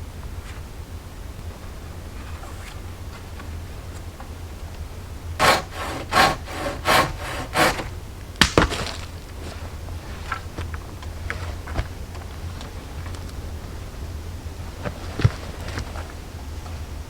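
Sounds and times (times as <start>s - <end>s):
sharp knocks: 5.4s - 9.2s
hand saw cutting wood: 5.4s - 9.5s.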